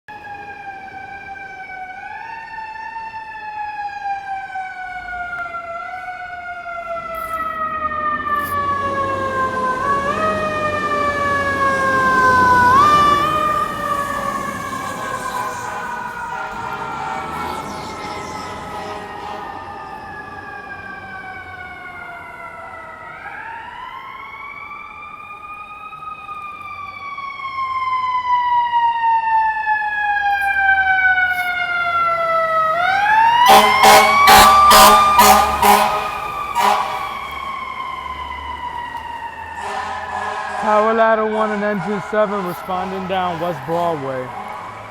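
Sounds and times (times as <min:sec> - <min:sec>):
air horn blasts: 0:14.8 - 0:20.2, 0:33.4 - 0:37.4, 0:39.6 - 0:44.5.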